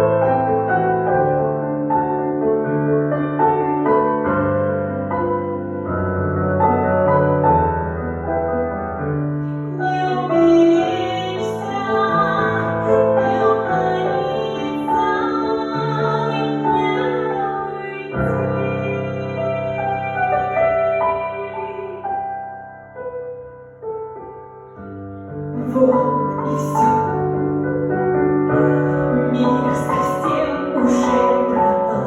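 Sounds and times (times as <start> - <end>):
piano accompaniment: 0.0 - 32.0
woman singing an aria: 9.7 - 22.2, 25.6 - 27.3, 28.5 - 32.0.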